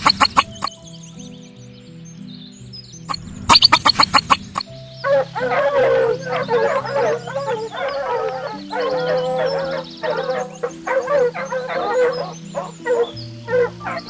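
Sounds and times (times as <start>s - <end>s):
chickens clucking and squawking: 0.0s - 0.7s, 3.1s - 14.0s
sharp clicks: 0.0s - 0.8s, 3.1s - 4.7s
background music: 0.0s - 14.0s.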